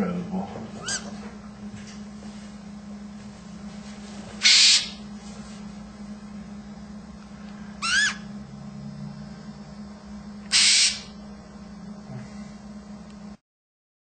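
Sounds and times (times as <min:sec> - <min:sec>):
steady low hum: 0:00.0 - 0:13.4
macaw calls and screeches: 0:00.8 - 0:01.1, 0:04.4 - 0:05.0, 0:07.8 - 0:08.3, 0:10.5 - 0:11.1.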